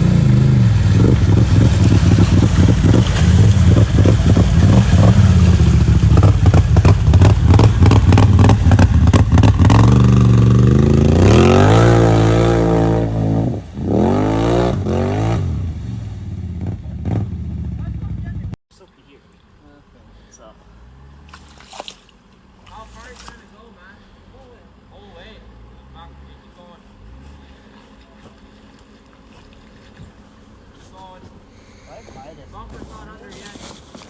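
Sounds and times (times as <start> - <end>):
atv engine revving under load: 0.0 - 18.2.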